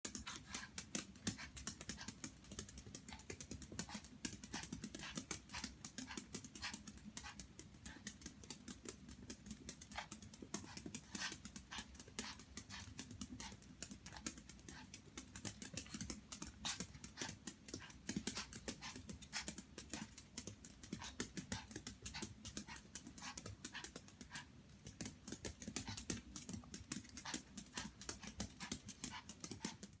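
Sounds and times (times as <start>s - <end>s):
small clicks and taps: 0.1s - 30.0s.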